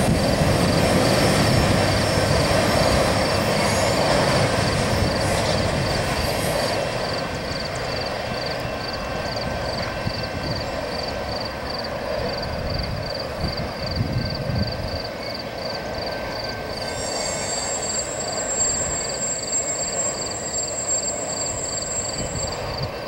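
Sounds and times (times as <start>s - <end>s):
freight train wheels rumbling: 0.0s - 23.0s
high wheel squeal: 0.1s - 11.4s, 15.1s - 23.0s
railroad crossing bell ringing: 0.9s - 11.3s, 15.1s - 23.0s.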